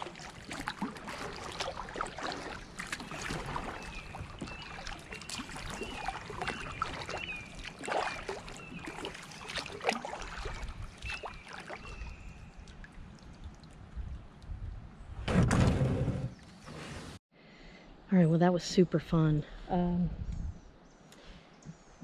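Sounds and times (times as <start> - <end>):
paddle strokes splashing water: 0.0 - 13.8.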